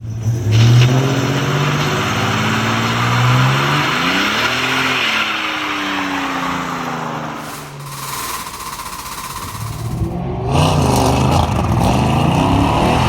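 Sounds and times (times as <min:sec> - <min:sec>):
strong hiss: 0:07.4 - 0:10.1.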